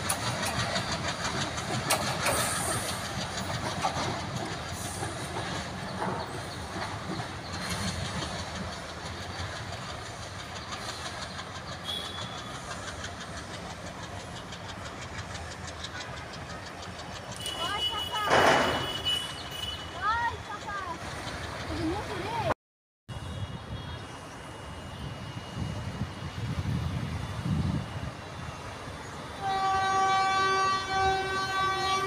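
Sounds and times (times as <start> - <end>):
train wheels clicking over rail joints: 0.0 - 22.5.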